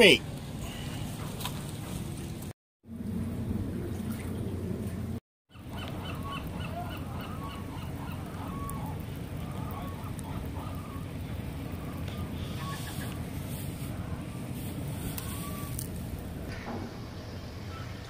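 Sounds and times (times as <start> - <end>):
birds honking: 5.6 - 13.2.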